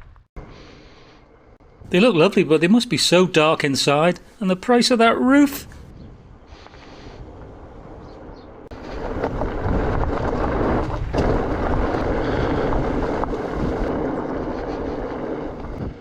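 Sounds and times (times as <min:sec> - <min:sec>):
wind on microphone: 0:05.6 - 0:16.0.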